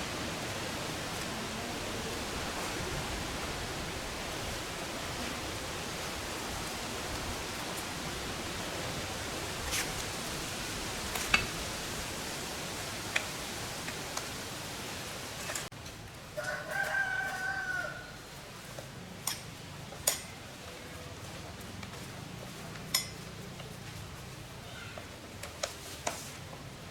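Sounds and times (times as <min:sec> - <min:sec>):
steady hiss: 0:00.0 - 0:16.2
rooster crowing: 0:16.3 - 0:18.3.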